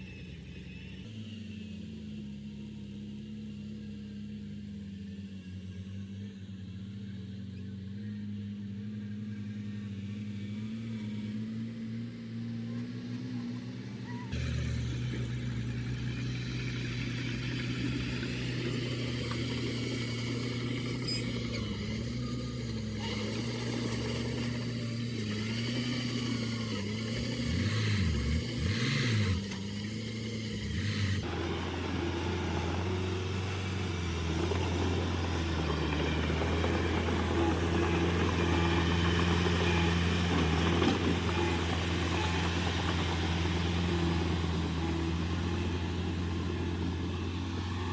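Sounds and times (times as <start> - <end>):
heavy machinery diesel engines: 0.0 - 47.9.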